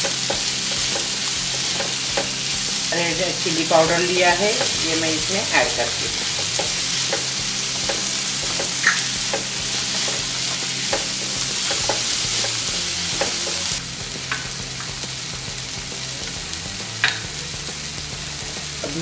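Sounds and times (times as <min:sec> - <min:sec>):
wooden spatula clicking on pan: 0:00.0 - 0:02.4, 0:05.6 - 0:10.3, 0:10.9 - 0:13.7
vegetables sizzling in hot oil: 0:00.0 - 0:19.0.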